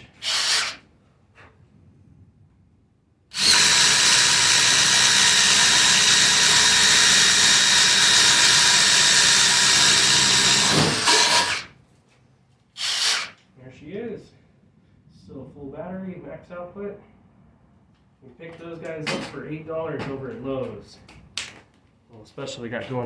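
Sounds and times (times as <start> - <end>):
impact driver drilling wood: 0.0 - 0.8, 3.3 - 11.7, 12.8 - 13.4.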